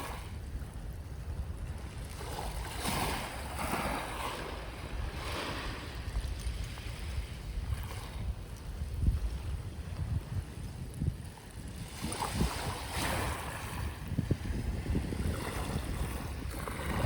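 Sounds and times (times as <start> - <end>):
sea waves washing: 2.0 - 8.4.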